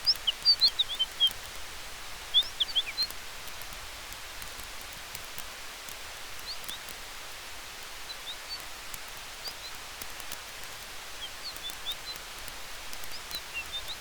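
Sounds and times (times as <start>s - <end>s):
bird chirping: 0.0s - 1.4s, 2.3s - 3.2s, 6.4s - 6.8s, 8.0s - 8.7s, 9.4s - 9.8s, 11.2s - 12.2s, 13.0s - 14.0s
campfire crackling: 0.0s - 14.0s
forest night ambience hiss: 0.0s - 14.0s.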